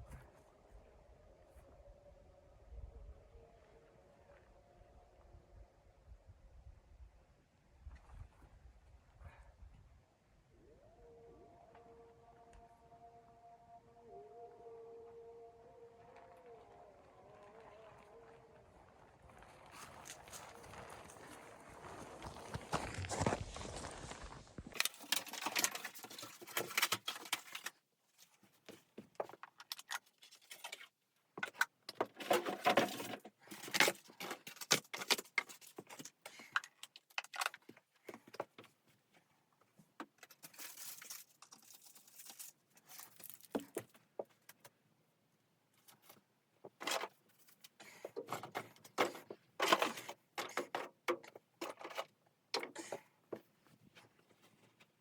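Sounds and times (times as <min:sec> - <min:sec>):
small clicks and crackles: 0:16.1 - 0:28.4.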